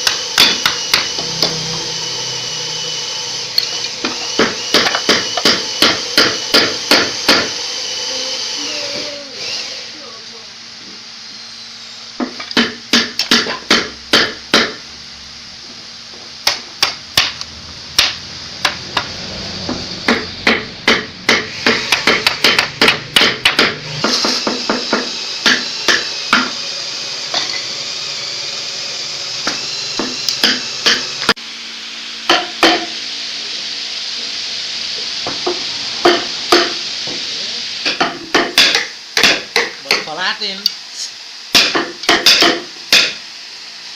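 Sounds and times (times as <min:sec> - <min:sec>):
hammer blows: 0:00.0 - 0:07.6, 0:16.2 - 0:26.6, 0:35.0 - 0:40.0.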